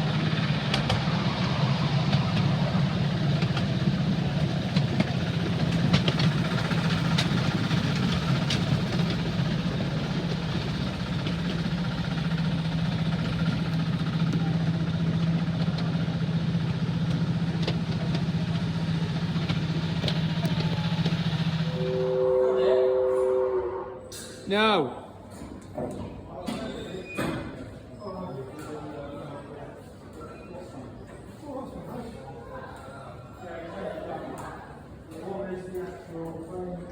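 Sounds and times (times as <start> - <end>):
engine idling: 0.0 - 22.4.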